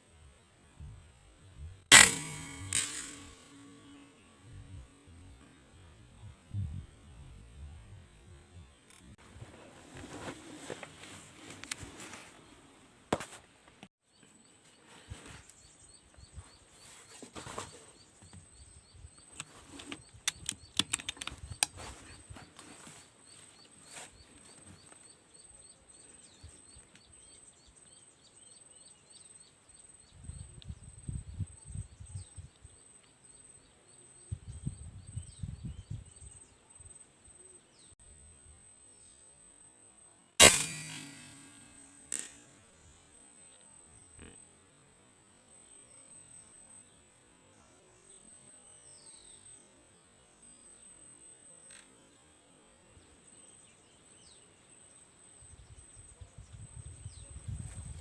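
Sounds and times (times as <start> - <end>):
sharp click: 1.9 - 4.1, 19.4 - 21.8, 40.4 - 42.5
low thumps and rustles: 9.2 - 12.4.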